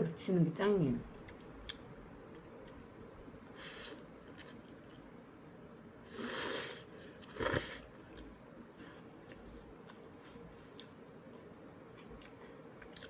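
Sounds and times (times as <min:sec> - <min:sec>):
person slurping noodles: 0:06.1 - 0:07.9.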